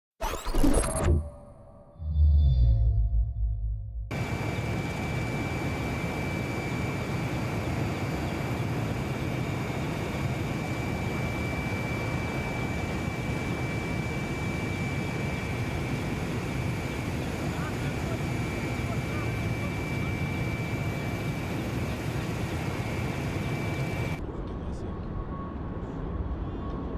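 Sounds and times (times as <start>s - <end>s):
deep low sound: 0.8s - 4.1s
jet aircraft flying over: 4.1s - 24.2s.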